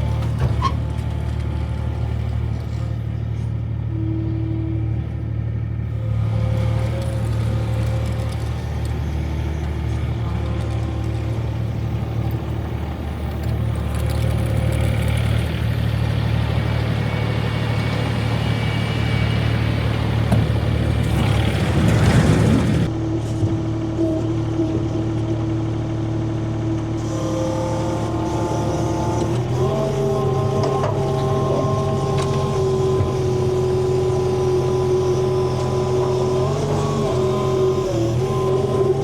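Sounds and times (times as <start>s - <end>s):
vehicle engine running: 0.0s - 39.0s.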